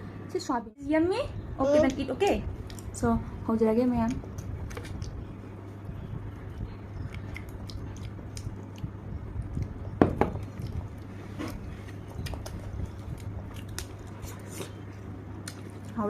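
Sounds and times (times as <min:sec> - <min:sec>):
steady low hum: 0:00.0 - 0:16.0
crunchy crackle: 0:06.4 - 0:16.0
person chewing: 0:07.0 - 0:15.9.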